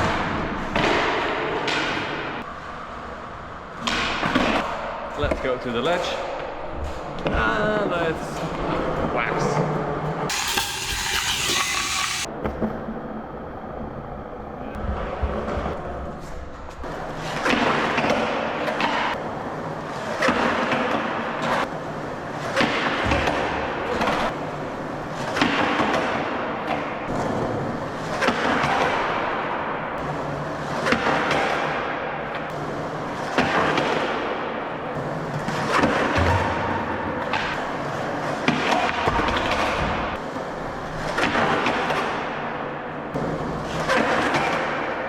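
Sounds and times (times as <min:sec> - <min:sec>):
skateboard scraping concrete ledge: 0:10.3 - 0:12.3.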